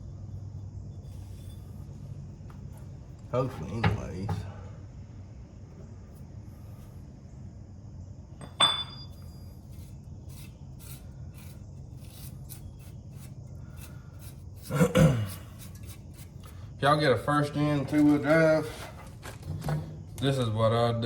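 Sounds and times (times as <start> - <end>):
steady low hum: 0.0 - 21.0
metallic clink: 8.4 - 9.3
scraping clatter: 17.6 - 20.2
light clicks and scrapes: 17.6 - 20.3.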